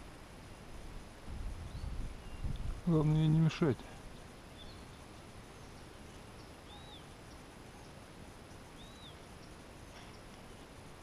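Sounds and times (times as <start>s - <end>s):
outdoor hiss: 0.0s - 11.0s
faint high bird chirps: 1.6s - 2.7s, 4.0s - 10.3s.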